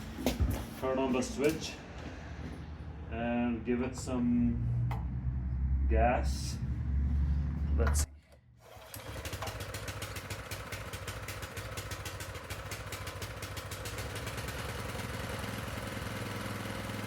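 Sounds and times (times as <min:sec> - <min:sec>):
small tiller engine running: 0:08.6 - 0:17.0.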